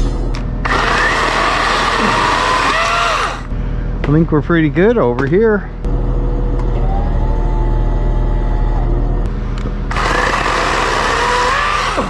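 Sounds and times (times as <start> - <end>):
low engine hum: 0.0 - 0.6, 5.8 - 9.4
electric chainsaw whine: 5.9 - 9.3, 9.9 - 12.0.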